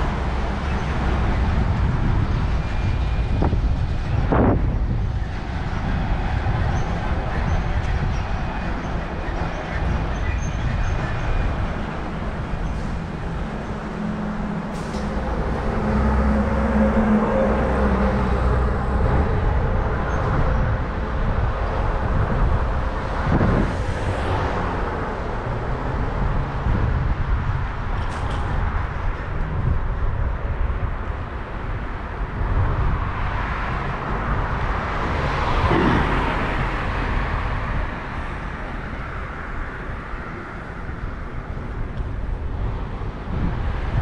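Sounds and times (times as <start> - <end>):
street traffic: 0.0 - 44.0
rushing noise: 11.0 - 27.0, 32.3 - 42.6
heavy vehicle passing: 12.0 - 26.7, 33.8 - 41.8.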